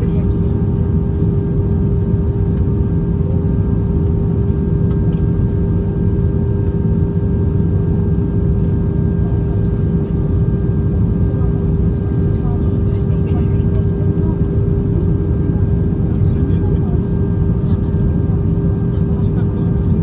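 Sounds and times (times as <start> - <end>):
airplane cabin engine rumble: 0.0 - 20.0
constant hum: 0.0 - 20.0.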